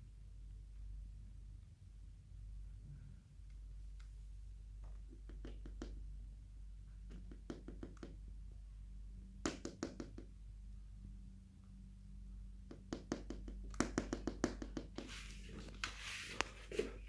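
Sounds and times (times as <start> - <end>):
light knocks and taps: 4.8 - 6.1, 12.6 - 16.9.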